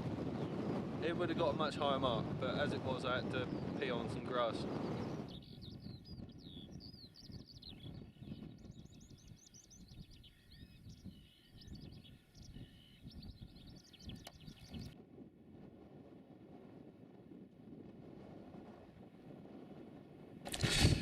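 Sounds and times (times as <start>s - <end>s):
low wind rumble: 0.0s - 21.0s
songbird chirps and trills: 3.0s - 15.0s.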